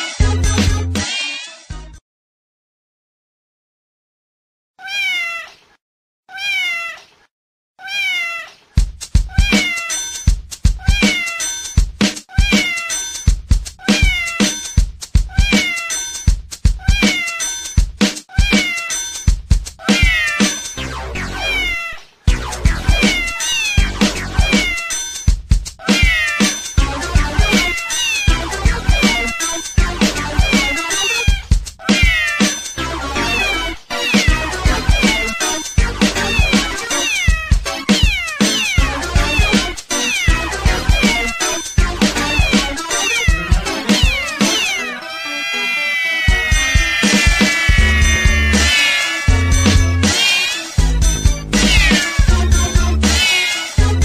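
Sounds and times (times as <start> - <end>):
music beat with kick drum: 0.2 - 1.0, 8.8 - 20.8, 22.3 - 32.8, 34.1 - 44.8, 46.3 - 54.0
cat meowing: 4.8 - 5.7, 6.3 - 7.1, 7.8 - 8.6, 9.3 - 10.0, 10.8 - 11.4, 12.3 - 13.0, 13.8 - 14.6, 15.3 - 16.0, 16.8 - 17.5, 18.3 - 19.0, 19.8 - 20.6, 21.3 - 22.1, 22.9 - 25.0, 25.8 - 26.7, 27.4 - 29.6, 30.3 - 32.6, 33.2 - 35.6, 36.2 - 41.4, 42.2 - 50.8, 51.6 - 53.8.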